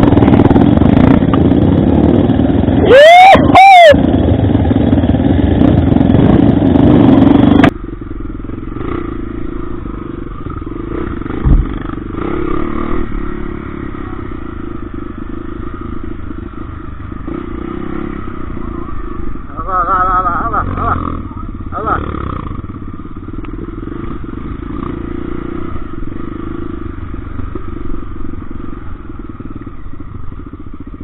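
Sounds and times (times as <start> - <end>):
motorcycle engine running: 0.0 - 31.0
short thump: 11.4 - 11.8.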